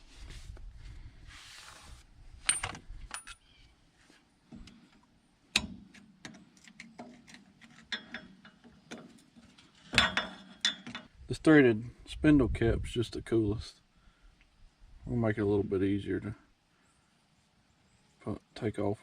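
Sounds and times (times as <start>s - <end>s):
metal parts clinking: 2.5s - 3.5s.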